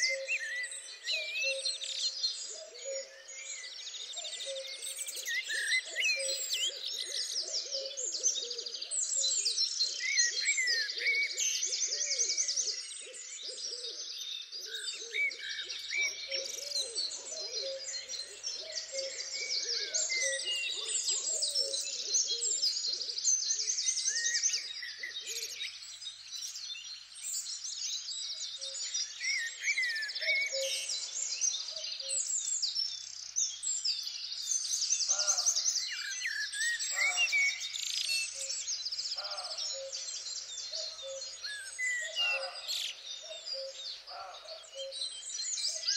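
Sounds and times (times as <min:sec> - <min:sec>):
birds chirping and trilling: 0:00.0 - 0:45.9
lower-pitched bird calls: 0:35.0 - 0:44.9.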